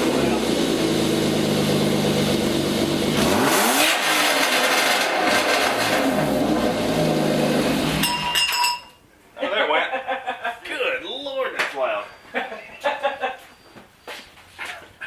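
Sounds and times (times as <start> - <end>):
car engine idling and revving: 0.0 - 8.1.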